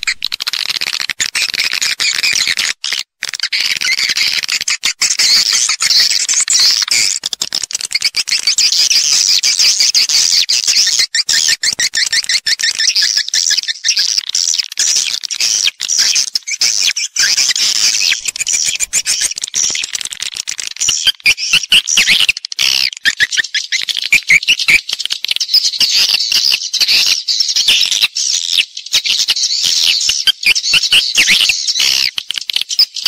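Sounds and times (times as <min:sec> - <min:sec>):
swiftlets twittering: 0:17.5 - 0:19.9.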